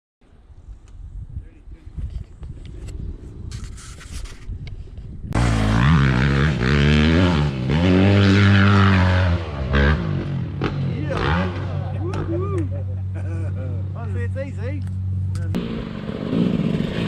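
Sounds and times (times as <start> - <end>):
off-road vehicle engine revving: 5.4 - 17.0.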